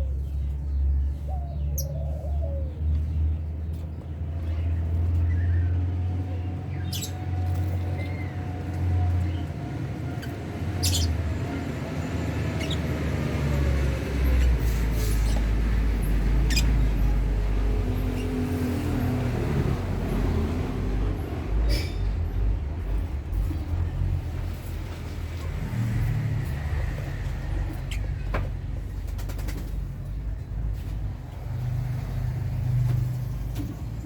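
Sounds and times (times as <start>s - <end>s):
lovebirds chirping: 9.2s - 18.9s.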